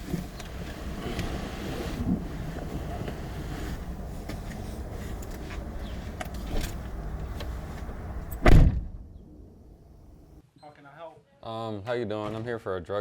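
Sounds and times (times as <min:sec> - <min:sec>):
engine and road rumble: 0:00.0 - 0:10.4
loud thump: 0:08.2 - 0:09.6.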